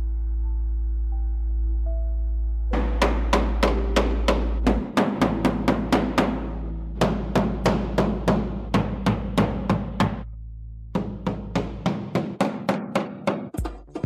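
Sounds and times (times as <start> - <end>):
background music: 0.0 - 14.0
hammer blows on sheet metal: 2.8 - 10.2.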